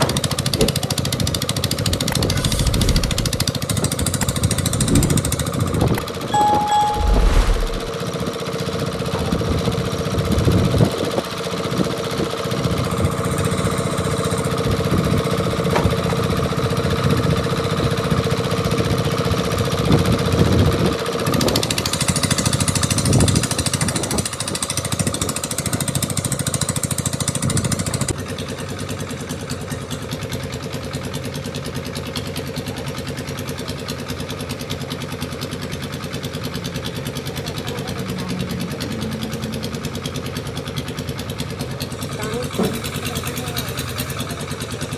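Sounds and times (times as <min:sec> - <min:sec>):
motor engine running: 0:01.9 - 0:03.8, 0:36.3 - 0:44.9.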